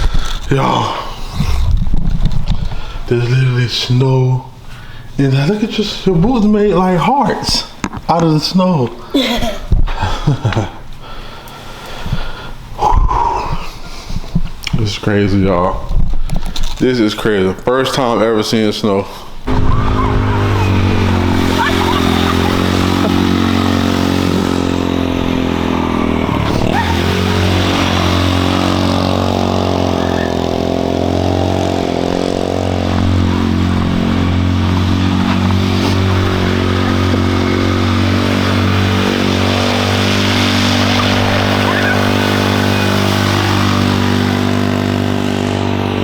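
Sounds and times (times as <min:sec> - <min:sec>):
engine idling: 0:19.5 - 0:46.0.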